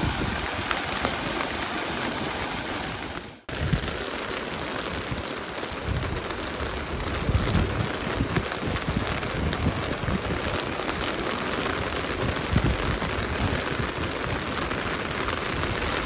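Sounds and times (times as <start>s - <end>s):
river rushing: 0.0s - 3.5s
wind buffeting microphone: 0.0s - 4.0s, 5.1s - 11.1s, 11.8s - 16.0s
heavy rain: 0.0s - 16.0s.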